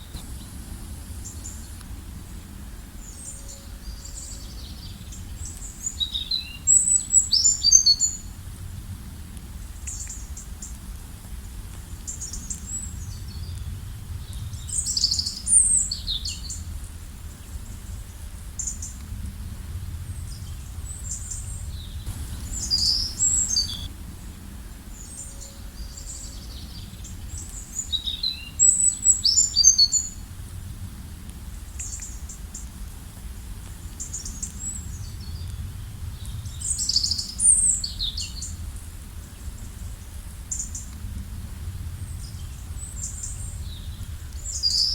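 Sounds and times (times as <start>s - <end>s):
songbirds chirping: 0.0s - 8.5s, 20.1s - 30.3s, 41.8s - 44.9s
low background rumble: 0.0s - 44.9s.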